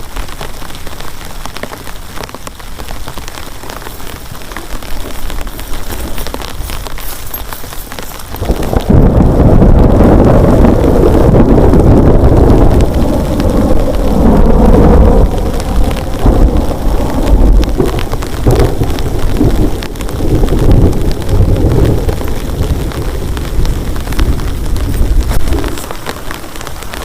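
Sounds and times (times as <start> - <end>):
heavy rain: 0.0 - 27.0
thunder rumbling: 0.0 - 27.0.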